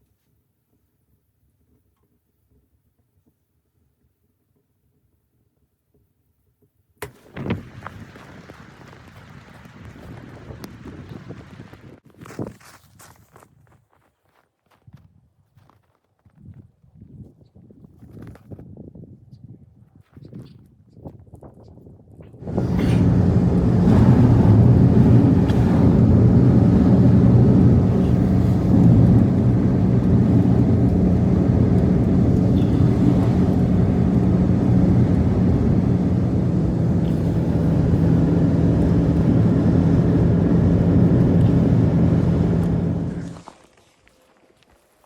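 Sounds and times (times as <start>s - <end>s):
motor humming: 22.4s - 43.4s.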